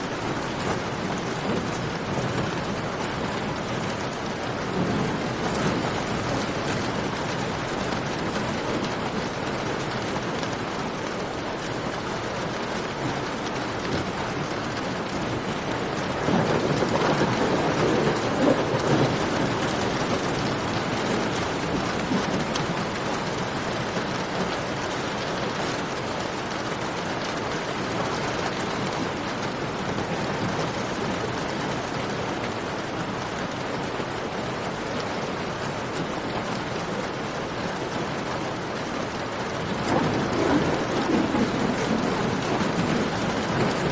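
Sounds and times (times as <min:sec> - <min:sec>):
thunder rolling: 0:00.0 - 0:26.0, 0:38.1 - 0:43.9
steady rain falling: 0:00.0 - 0:43.9.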